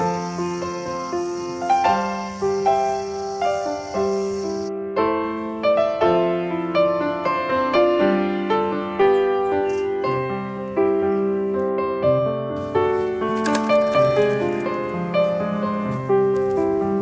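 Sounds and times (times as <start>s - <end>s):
faint high hiss: 0.0s - 4.7s
gentle piano melody: 0.0s - 17.0s.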